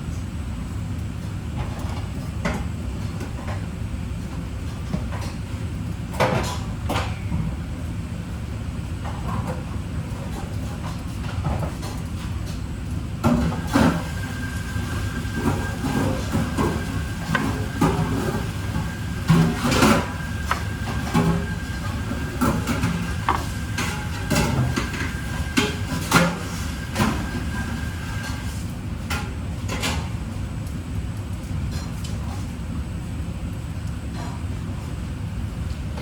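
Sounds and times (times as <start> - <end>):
kitchen clatter and knocks: 15.3 - 27.7.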